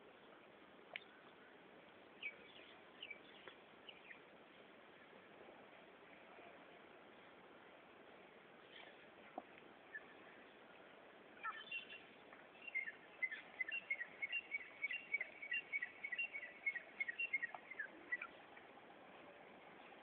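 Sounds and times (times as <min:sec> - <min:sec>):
small bird chirping: 0:11.4 - 0:18.4.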